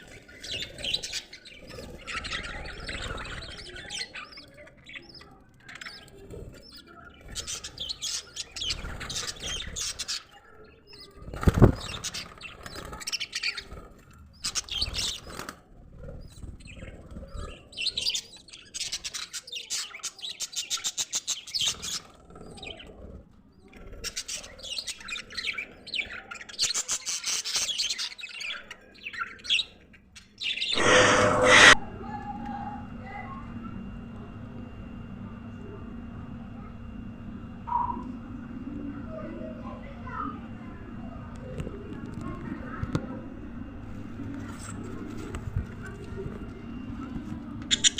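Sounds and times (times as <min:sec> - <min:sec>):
budgerigars chattering: 0:00.1 - 0:13.7.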